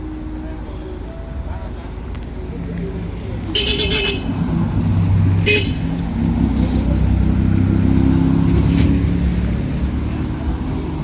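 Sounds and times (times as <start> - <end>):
engine low rumble: 0.0 - 11.0
horn toot: 5.4 - 5.9.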